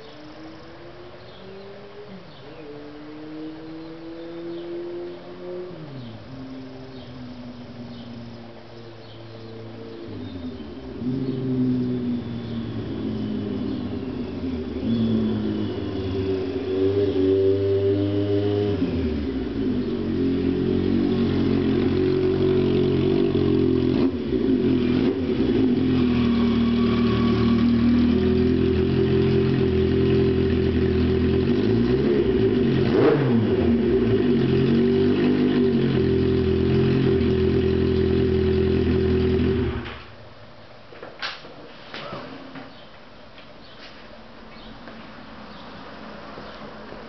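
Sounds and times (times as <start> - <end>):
motorcycle engine revving: 0.0 - 40.2.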